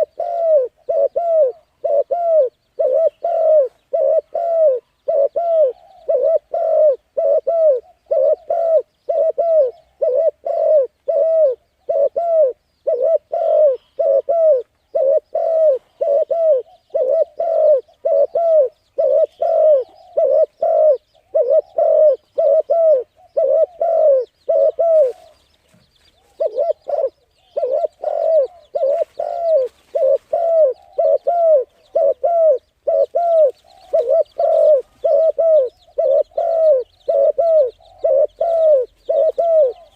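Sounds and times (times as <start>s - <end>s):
bird calling low notes: 26.2s - 39.9s.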